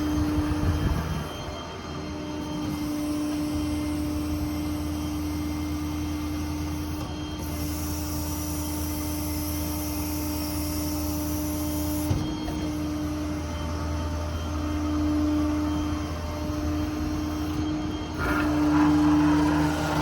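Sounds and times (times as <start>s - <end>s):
hydraulic whine: 0.0s - 20.0s
diesel engine running: 15.8s - 20.0s.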